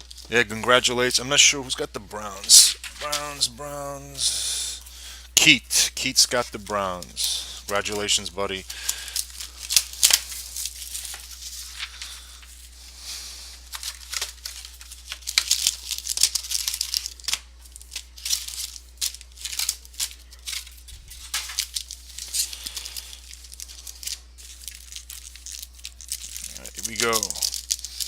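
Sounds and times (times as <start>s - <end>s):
plastic packaging ripping and rustling: 8.7s - 12.8s, 13.5s - 28.0s.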